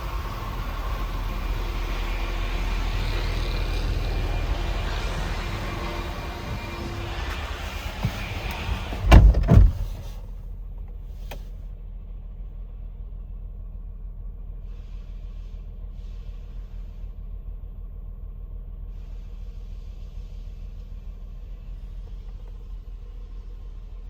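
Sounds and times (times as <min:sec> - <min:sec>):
car engine idling: 0:00.0 - 0:24.0
heavy thumps: 0:04.2 - 0:10.2.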